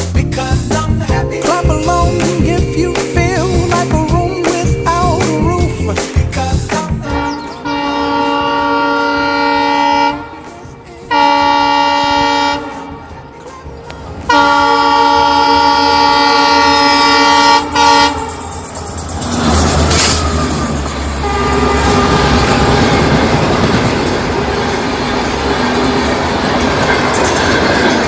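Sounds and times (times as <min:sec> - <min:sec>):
moving train rumble: 0:00.0 - 0:28.0
locomotive air horn blasts: 0:07.1 - 0:10.4, 0:11.0 - 0:13.1, 0:14.3 - 0:18.5, 0:19.5 - 0:23.6.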